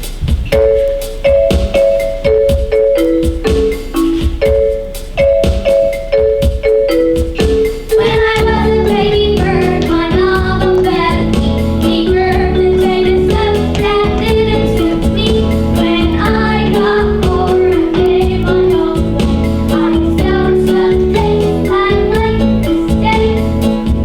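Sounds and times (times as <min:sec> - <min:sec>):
music with steady beat: 0:00.0 - 0:24.0
children singing: 0:07.9 - 0:24.0.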